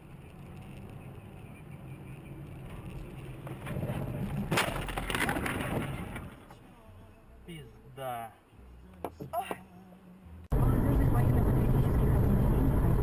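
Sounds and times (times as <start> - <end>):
car engine and road rumble: 0.0 - 13.0
crunching scraping collision: 2.3 - 6.6.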